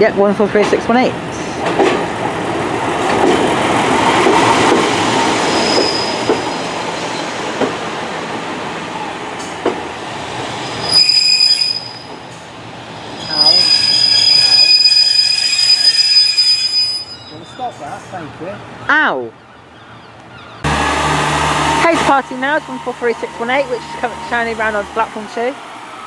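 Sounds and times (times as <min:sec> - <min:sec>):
train rumbling: 0:00.0 - 0:18.8, 0:20.6 - 0:26.0
high-pitched wheel squeal: 0:05.4 - 0:07.3, 0:10.8 - 0:12.1, 0:13.2 - 0:17.7.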